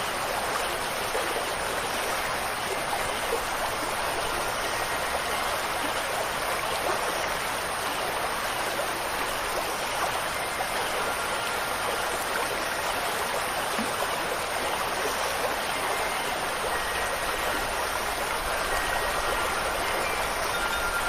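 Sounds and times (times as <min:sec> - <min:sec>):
flowing water: 0:00.0 - 0:21.0
faint high wind chimes: 0:00.1 - 0:21.0.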